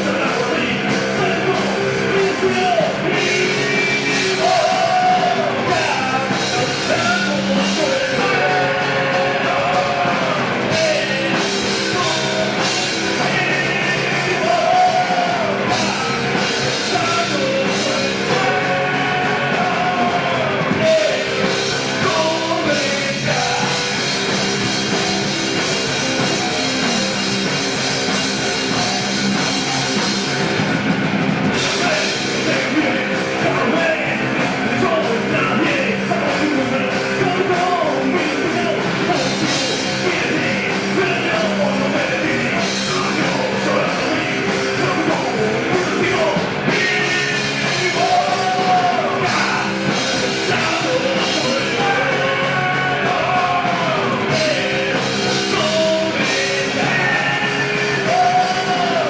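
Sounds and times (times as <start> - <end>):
person singing: 0.0 - 30.1, 31.5 - 59.0
rock band playing: 0.0 - 59.0.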